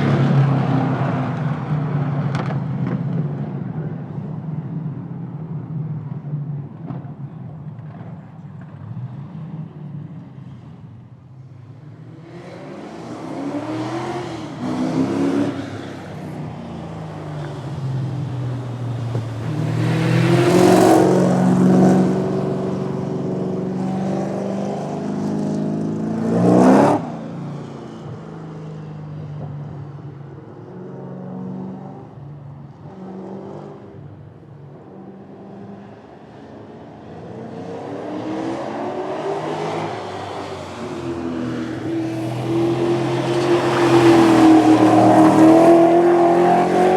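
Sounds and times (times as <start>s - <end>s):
drag racing car engines revving: 0.0s - 4.4s, 12.0s - 16.4s, 34.9s - 46.9s
car passing close: 12.1s - 27.0s, 37.9s - 46.9s.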